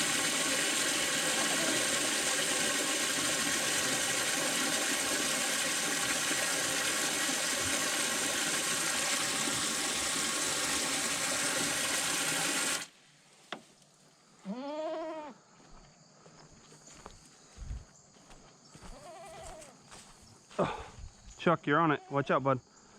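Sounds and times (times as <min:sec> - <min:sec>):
water gushing from hose: 0:00.0 - 0:12.9
goat bleat: 0:14.4 - 0:15.4, 0:18.9 - 0:19.7.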